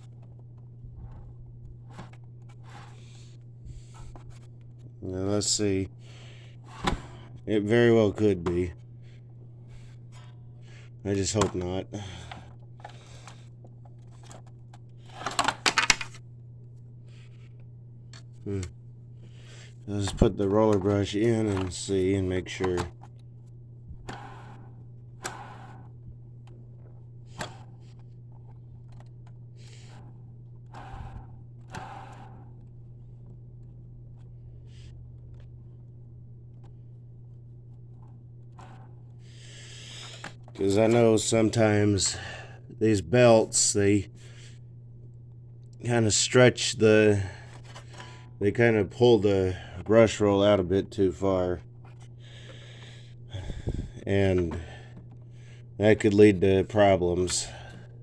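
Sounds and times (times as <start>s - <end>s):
steady low hum: 0.0s - 58.0s
vacuum cleaner parts clattering: 11.1s - 13.4s, 15.1s - 16.2s, 20.0s - 23.0s, 39.6s - 42.4s
plastic parts clicking: 15.1s - 16.2s.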